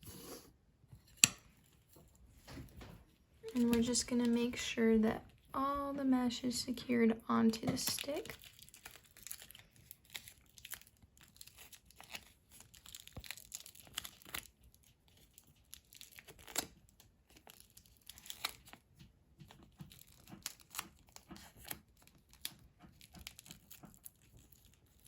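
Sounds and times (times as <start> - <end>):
adhesive tape crinkling and tearing: 7.8 - 18.8, 19.5 - 25.0.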